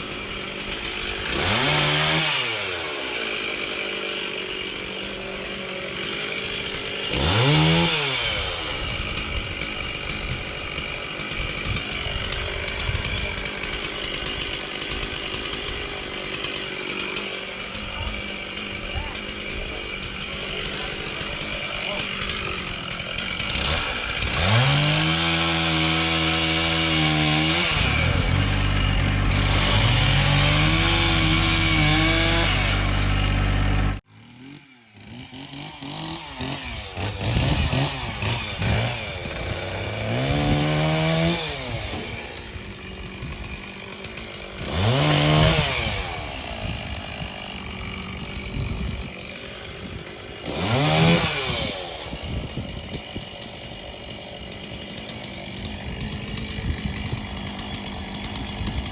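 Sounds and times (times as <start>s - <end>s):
chainsaw revving: 0.0s - 58.9s.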